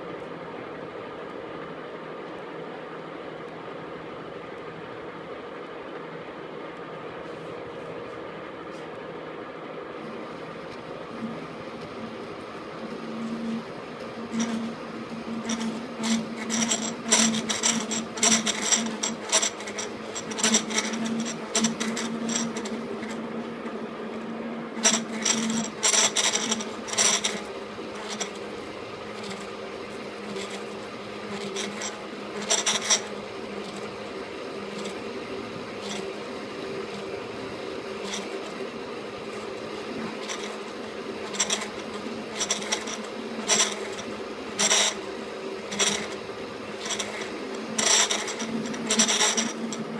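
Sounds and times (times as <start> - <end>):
metal lathe humming: 10.0 - 49.9
cutting tool scraping metal: 13.3 - 49.9.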